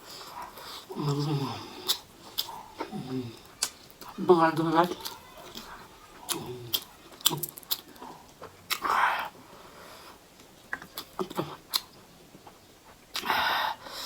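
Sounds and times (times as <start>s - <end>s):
person chewing: 0.0s - 9.0s, 10.7s - 12.0s
wet mouth clicks: 1.8s - 4.1s, 6.3s - 9.0s.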